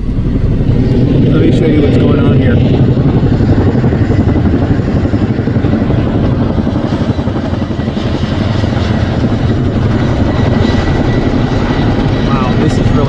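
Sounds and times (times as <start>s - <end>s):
high whine: 0.0s - 6.5s
helicopter rotor thudding: 0.0s - 13.0s.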